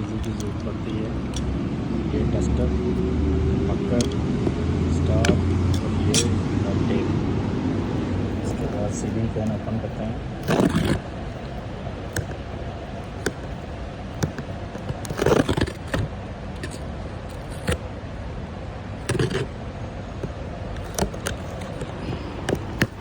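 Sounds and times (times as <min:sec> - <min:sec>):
cardboard box scraping and rustling: 0:10.4 - 0:11.5, 0:19.1 - 0:19.5.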